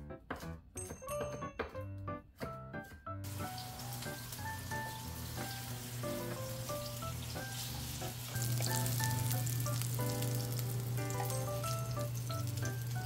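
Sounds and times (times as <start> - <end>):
tofu sizzling in oil: 3.3 - 13.0
low steady hum: 5.1 - 13.0.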